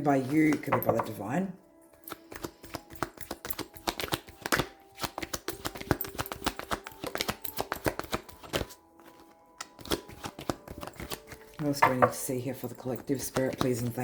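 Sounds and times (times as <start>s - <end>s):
cards being shuffled: 2.1s - 12.2s, 13.2s - 14.0s.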